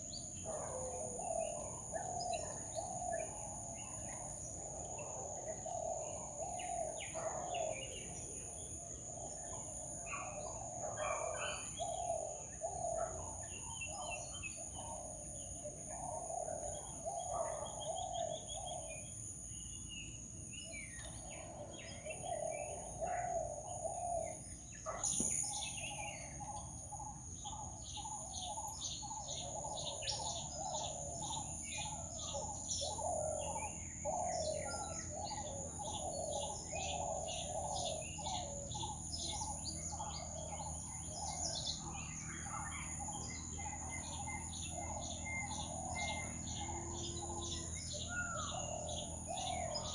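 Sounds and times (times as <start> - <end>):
birds calling: 0.0 - 49.9.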